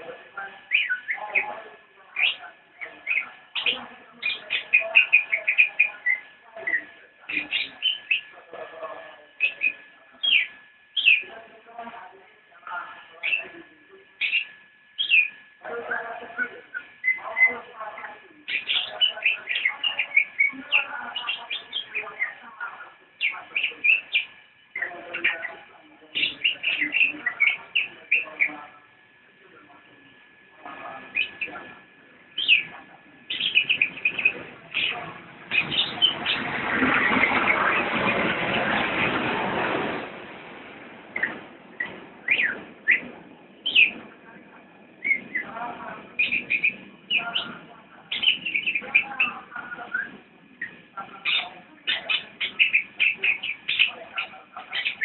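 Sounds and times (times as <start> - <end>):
songbird singing: 0.0 - 11.4, 13.0 - 28.7, 30.6 - 39.1, 41.1 - 55.0
loud rushing noise: 36.1 - 42.2.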